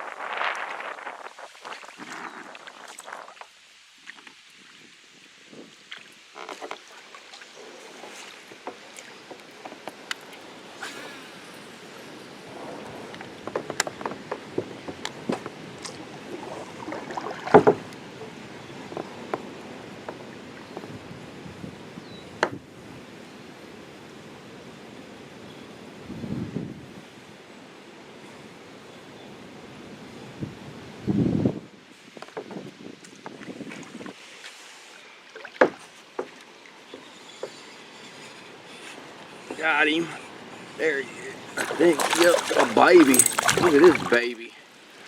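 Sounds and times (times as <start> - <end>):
wind hiss: 0.0 - 6.3, 9.6 - 35.2, 37.1 - 45.0
fishing gear clicking and knocking: 41.6 - 44.2.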